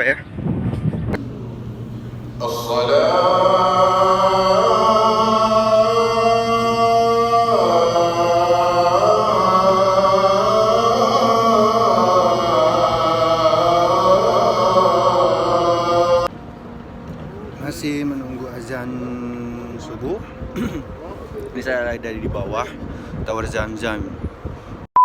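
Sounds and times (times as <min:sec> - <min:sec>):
person chanting long gliding notes: 0:01.2 - 0:16.3, 0:17.4 - 0:20.5.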